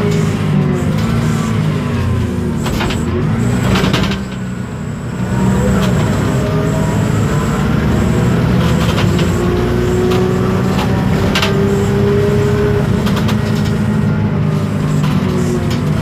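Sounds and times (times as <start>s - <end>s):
bus diesel engine running: 0.0s - 16.0s
faint gearbox whine: 0.0s - 16.0s
sharp clicks and knocks: 2.6s - 4.5s, 8.6s - 11.7s, 13.0s - 13.8s.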